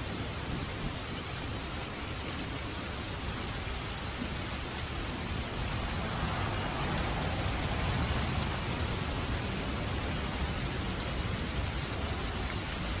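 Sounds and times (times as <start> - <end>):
heavy rain on a roof: 0.0 - 13.0
distant thunder rumbling: 3.3 - 13.0.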